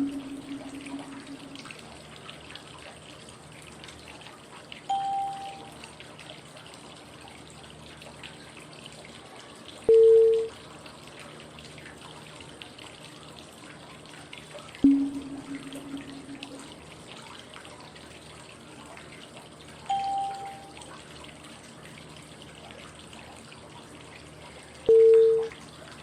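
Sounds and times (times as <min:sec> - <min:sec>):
lower cue tone: 0:00.0 - 0:01.8, 0:04.9 - 0:05.8, 0:14.8 - 0:16.9, 0:19.9 - 0:20.8
short higher cue tone: 0:00.0 - 0:01.8, 0:04.9 - 0:05.7, 0:14.8 - 0:16.9, 0:19.9 - 0:20.8
flowing water white noise: 0:00.0 - 0:02.2, 0:04.7 - 0:11.5, 0:14.8 - 0:17.0, 0:19.5 - 0:22.4.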